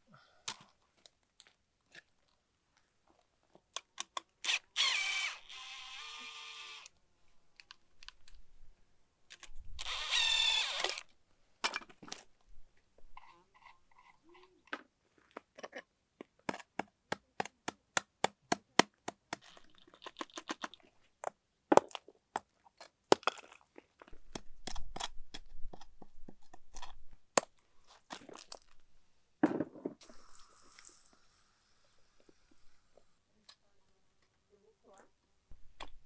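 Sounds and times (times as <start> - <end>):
short hiss: 30.0 - 33.0.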